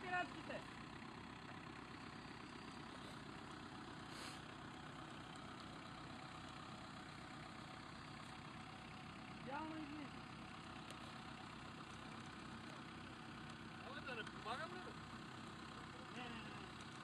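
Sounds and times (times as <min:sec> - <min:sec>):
vehicle engine idling: 0:00.0 - 0:17.0
short hiss: 0:04.0 - 0:04.5.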